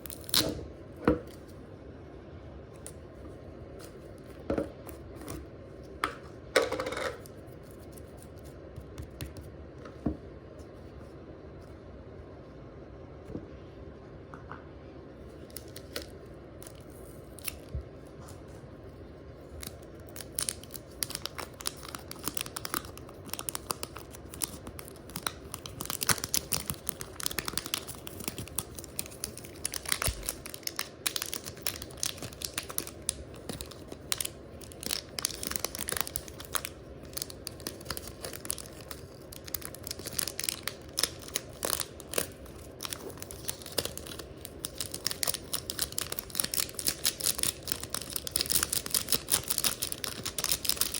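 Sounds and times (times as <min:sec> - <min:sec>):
slime crackling and tearing: 0:00.0 - 0:00.5, 0:19.6 - 0:50.9.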